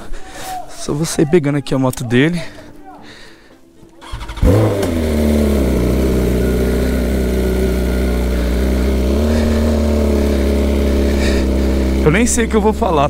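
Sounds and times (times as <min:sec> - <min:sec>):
motorcycle engine starting and idling: 0:04.0 - 0:13.0.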